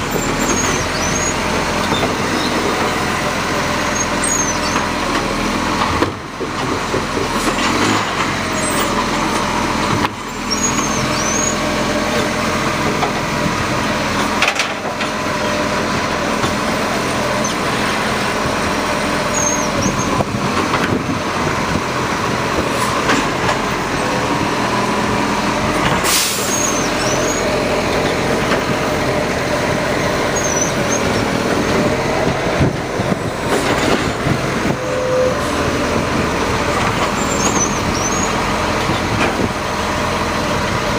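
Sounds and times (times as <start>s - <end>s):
garbage truck running: 0.0s - 40.9s
short sharp air hiss: 26.0s - 26.6s.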